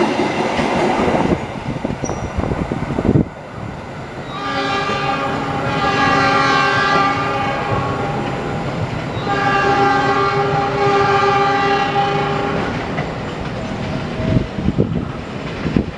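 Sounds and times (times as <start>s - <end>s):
train rumble and wheel clatter: 0.0s - 15.9s
diesel locomotive horn blasts: 4.2s - 8.4s, 9.1s - 12.8s.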